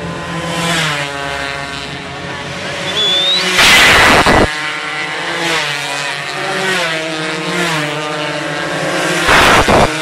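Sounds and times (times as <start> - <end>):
racing motorcycle engines revving: 0.0 - 10.0
loud rush of noise: 2.2 - 4.5, 9.3 - 10.0.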